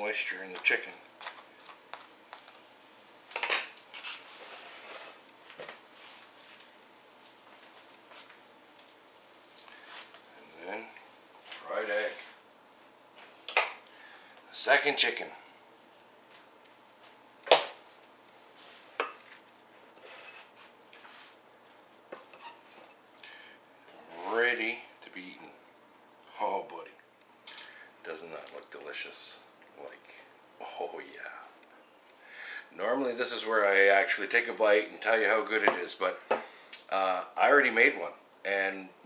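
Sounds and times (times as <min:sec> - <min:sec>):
knife and dishes clinking: 0:22.1 - 0:23.0.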